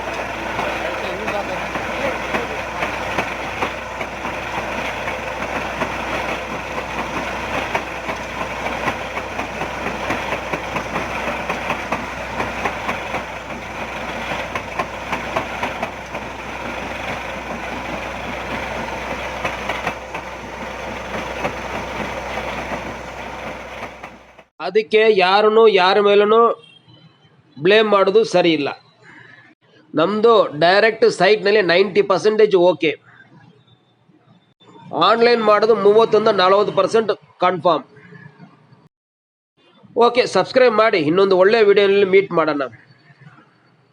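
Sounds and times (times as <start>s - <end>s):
large engine running: 0.0s - 24.5s.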